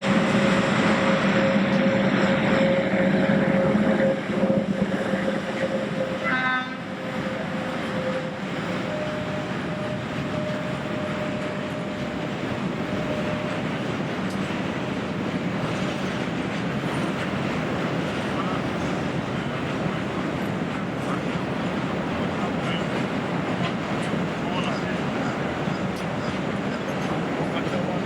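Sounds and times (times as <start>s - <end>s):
freight train rumbling: 0.0s - 28.0s
locomotive horn toot: 0.3s - 12.1s.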